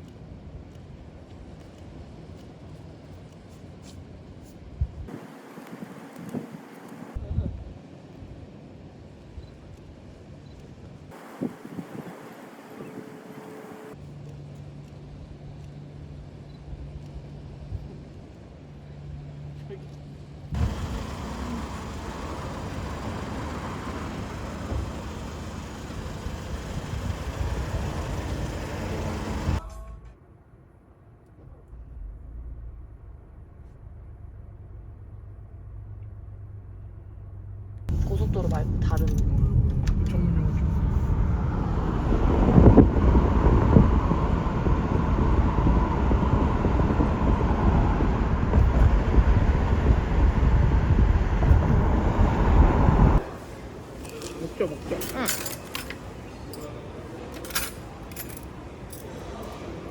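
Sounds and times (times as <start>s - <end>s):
car road noise: 11.1s - 14.0s, 20.4s - 29.6s, 31.4s - 56.3s.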